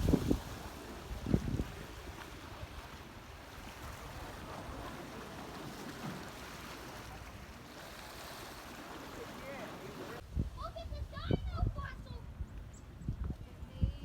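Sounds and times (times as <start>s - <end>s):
water noise: 0.0s - 11.2s
wind: 0.0s - 14.0s.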